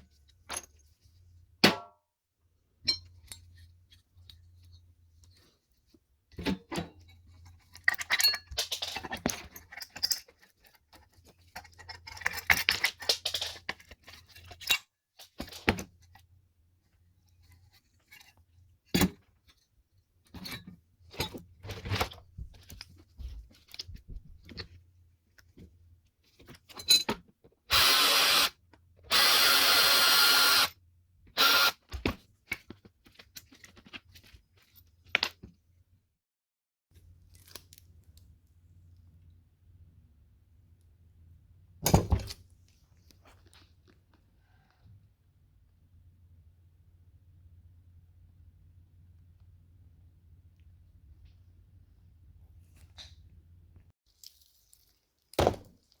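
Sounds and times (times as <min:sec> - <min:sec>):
power tool running: 0:27.7 - 0:28.5, 0:29.1 - 0:30.7, 0:31.4 - 0:31.8.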